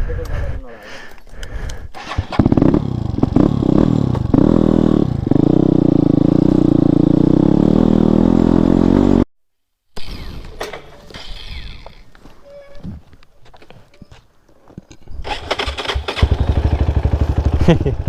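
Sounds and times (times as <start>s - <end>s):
motorcycle engine revving: 2.0s - 9.3s, 15.3s - 18.0s.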